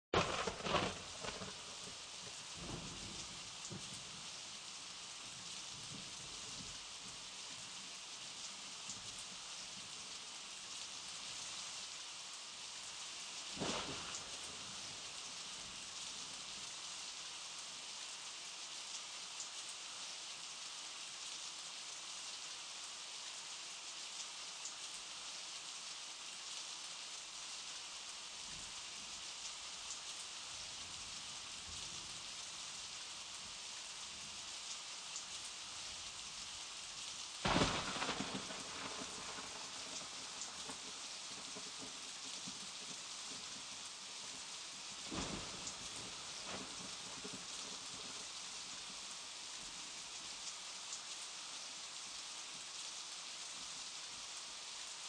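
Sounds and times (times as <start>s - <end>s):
rain falling on sea: 0.1s - 55.0s.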